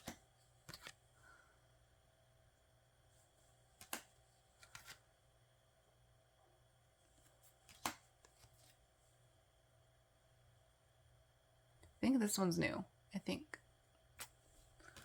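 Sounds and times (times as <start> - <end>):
cards clicking and sliding: 0.0 - 1.0, 3.7 - 5.1, 7.2 - 8.8, 14.2 - 15.0.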